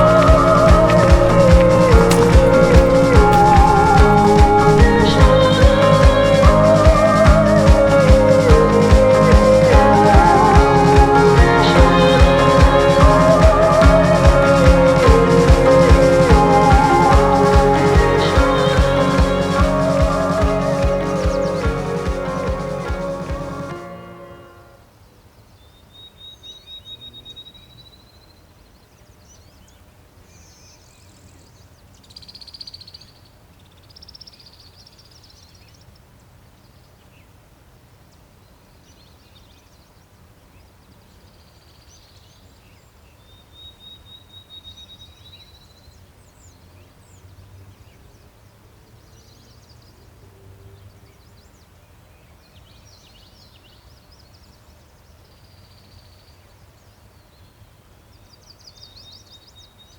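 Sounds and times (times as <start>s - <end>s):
faint low rumble: 0.0s - 13.8s.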